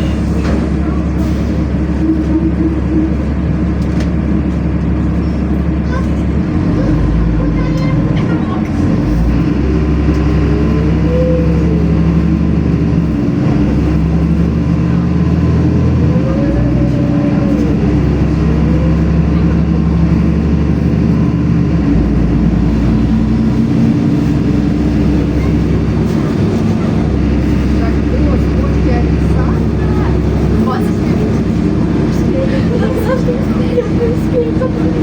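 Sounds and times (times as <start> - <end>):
bus engine humming: 0.0 - 35.0.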